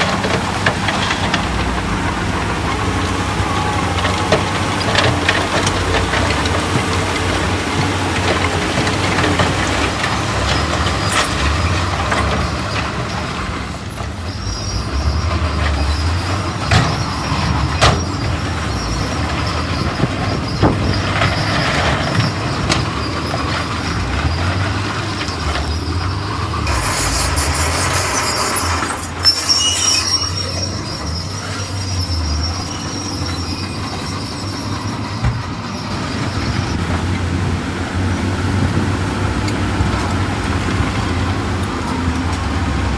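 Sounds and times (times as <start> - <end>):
diesel machinery engine rumble: 0.0 - 42.9
high squeal: 14.2 - 24.6, 25.3 - 36.9.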